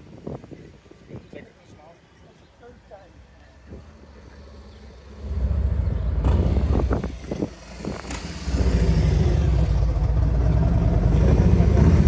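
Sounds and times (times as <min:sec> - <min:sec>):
car engine and exhaust rumbling: 0:03.9 - 0:12.0.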